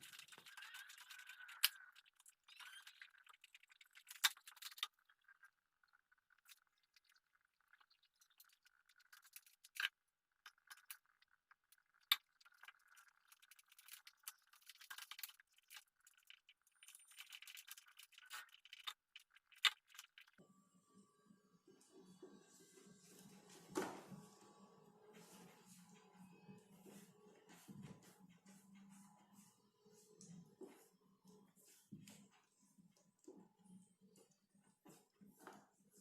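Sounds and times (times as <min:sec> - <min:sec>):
small parts rattling and scraping: 0:00.0 - 0:05.5, 0:06.2 - 0:20.4.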